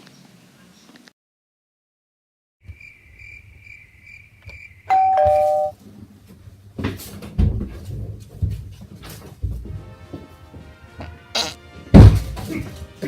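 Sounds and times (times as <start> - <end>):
faint high pulsing beep: 4.9 - 5.7
two-note doorbell chime: 4.9 - 5.7
knocks and thumps: 6.8 - 9.8, 12.0 - 12.6.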